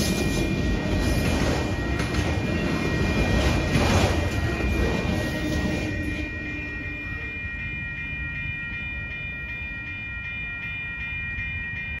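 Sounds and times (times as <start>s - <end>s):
freight train rumble: 0.0s - 12.0s
railroad crossing bell ringing: 0.0s - 12.0s.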